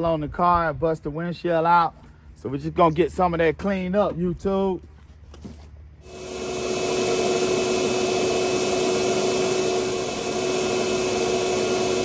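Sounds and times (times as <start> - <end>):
vacuum cleaner whining: 6.1 - 12.0.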